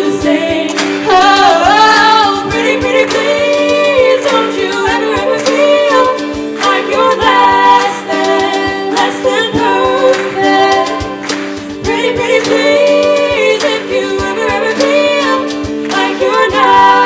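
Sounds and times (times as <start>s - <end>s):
choir singing: 0.0s - 17.0s
instrumental backing: 0.0s - 17.0s.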